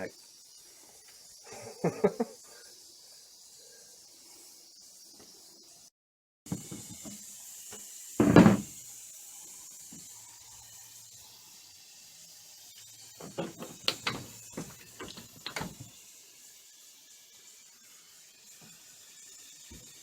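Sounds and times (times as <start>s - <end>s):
heavy wooden thump: 8.2s - 8.7s.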